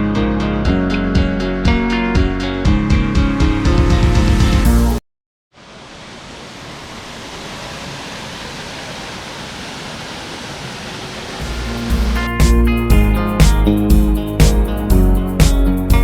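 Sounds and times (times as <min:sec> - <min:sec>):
waterfall rushing: 0:05.6 - 0:12.6.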